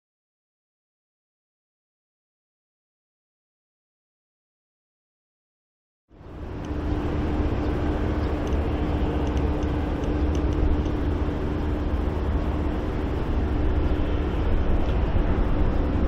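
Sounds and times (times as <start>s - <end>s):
jet engines rumbling: 6.1s - 16.0s.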